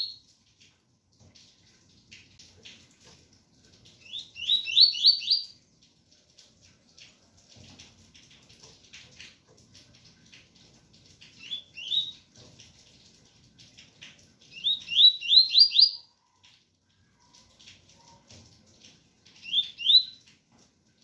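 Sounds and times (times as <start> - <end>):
rain pattering: 0.0 - 21.0
bird singing whistled notes: 4.1 - 5.5, 11.4 - 12.2, 14.6 - 16.1, 19.4 - 20.2.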